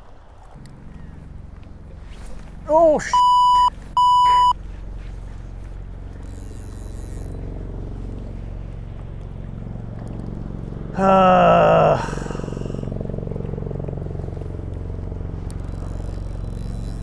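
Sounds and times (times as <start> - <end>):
low engine drone: 0.6 - 17.0
censor bleeps: 2.8 - 4.6
loud held voice: 11.0 - 12.9.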